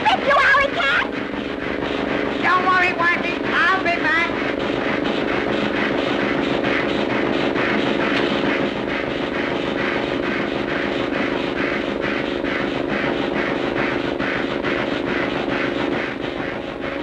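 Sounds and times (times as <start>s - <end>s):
droning chugging engine effect: 0.0s - 17.0s.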